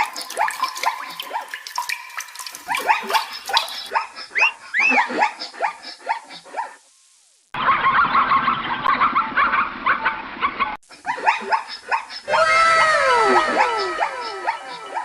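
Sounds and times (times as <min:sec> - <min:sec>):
animals yipping and chirping: 0:00.0 - 0:06.8, 0:07.6 - 0:15.0.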